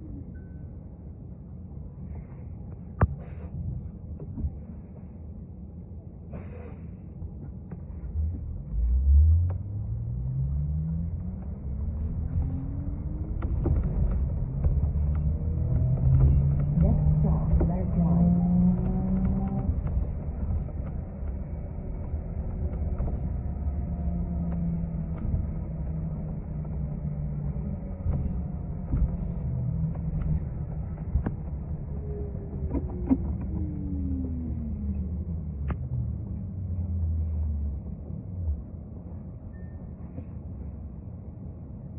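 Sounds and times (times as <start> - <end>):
faint falling whine: 0.0 - 3.2, 8.0 - 41.1
bus engine accelerating: 3.6 - 41.9
rattles and clicks: 11.2 - 35.8.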